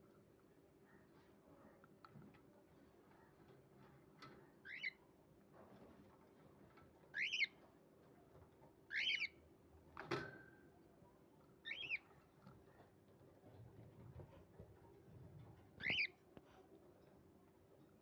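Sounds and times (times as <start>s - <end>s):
bird chirping: 4.6s - 5.0s, 7.1s - 7.6s, 8.9s - 9.4s, 11.6s - 12.2s, 15.8s - 16.2s.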